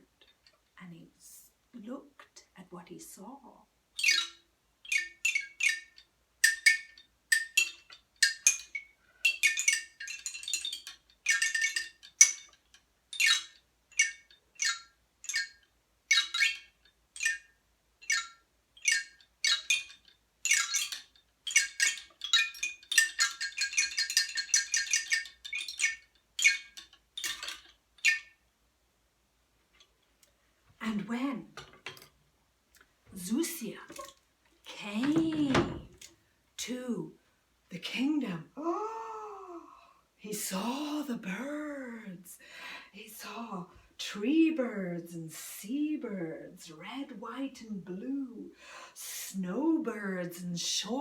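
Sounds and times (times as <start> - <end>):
tinkling chimes: 4.0 - 28.4.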